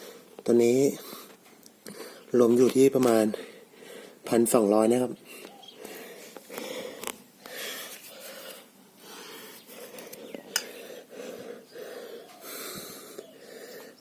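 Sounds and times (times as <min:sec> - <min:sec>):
man panting hard: 0:03.3 - 0:04.2, 0:05.2 - 0:14.0.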